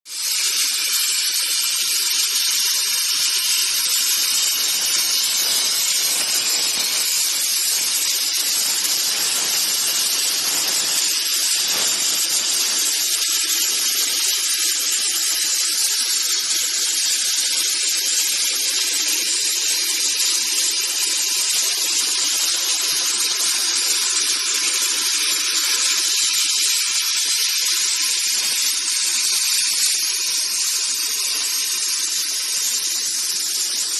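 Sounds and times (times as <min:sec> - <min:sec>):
plasma torch cutting steel hiss: 0:00.1 - 0:33.9.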